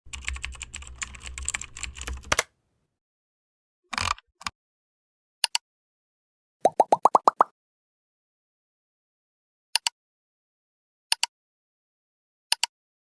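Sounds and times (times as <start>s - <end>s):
keyboard typing clicks: 0.1s - 2.5s.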